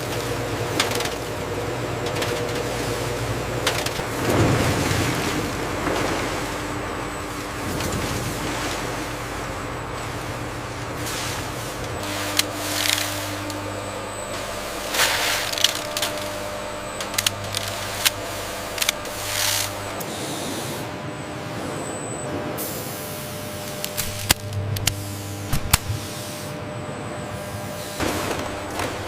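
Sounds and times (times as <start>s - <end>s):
factory machinery hum: 0.0s - 29.0s.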